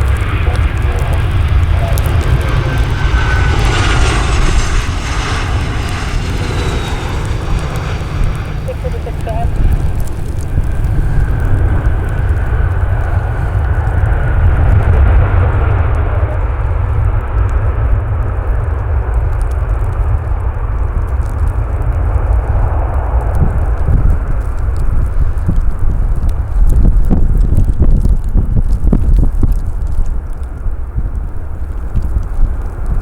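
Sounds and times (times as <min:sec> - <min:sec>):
jet engine whine: 0:00.0 - 0:25.4
low rumble: 0:00.0 - 0:33.0.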